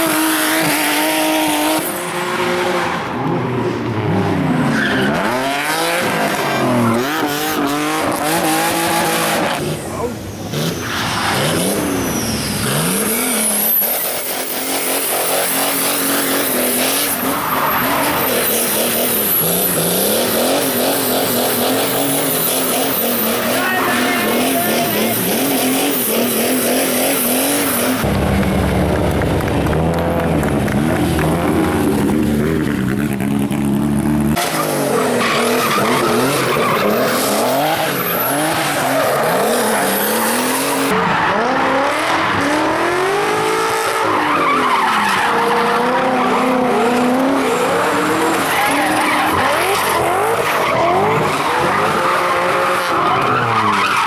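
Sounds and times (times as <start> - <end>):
race car engines revving: 0.0 - 54.0
tyres squealing: 10.6 - 28.0.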